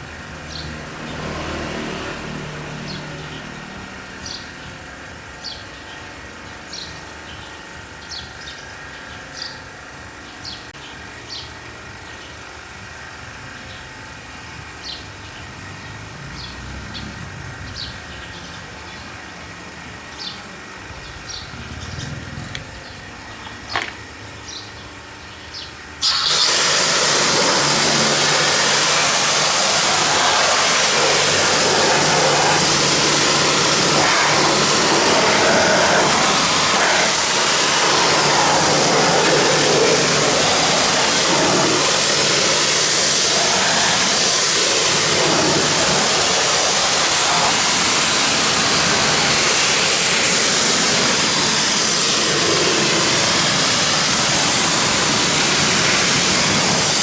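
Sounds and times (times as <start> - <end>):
birds chirping: 2.8 - 12.4, 14.8 - 57.0
pressure washer spraying: 26.0 - 57.0.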